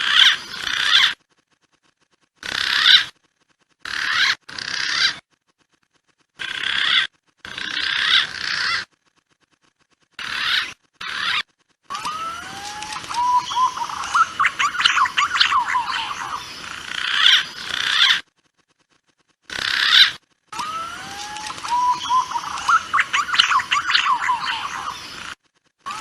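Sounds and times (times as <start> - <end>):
pigeon calls whistling: 10.3 - 18.2, 19.8 - 25.2.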